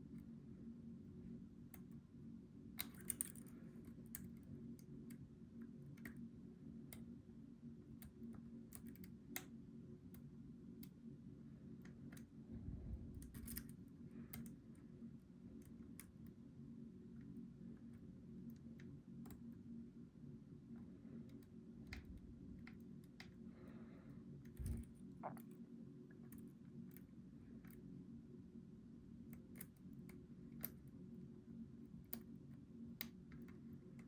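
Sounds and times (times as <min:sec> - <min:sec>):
steady low hum: 0:00.0 - 0:34.0
lock pick metallic clicks: 0:02.8 - 0:03.5.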